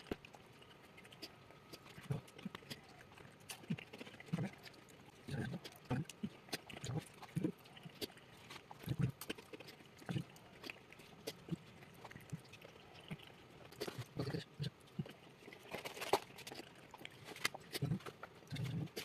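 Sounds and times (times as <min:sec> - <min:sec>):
mouth smacks and clicks: 0:00.0 - 0:19.0
person chewing: 0:00.0 - 0:19.0.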